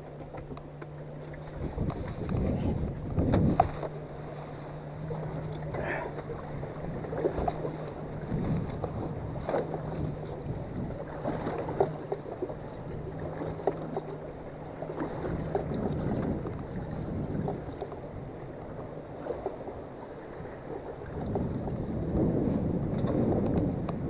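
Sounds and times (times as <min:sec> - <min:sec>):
low steady hum: 0:00.0 - 0:24.0
water noise: 0:00.0 - 0:24.0
wind: 0:00.0 - 0:24.0.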